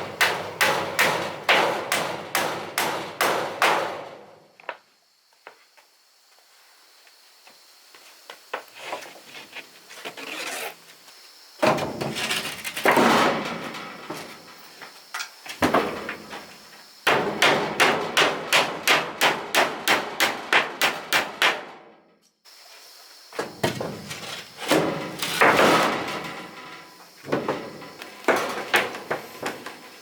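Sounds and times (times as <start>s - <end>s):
rough scraping on wood: 8.8s - 10.8s.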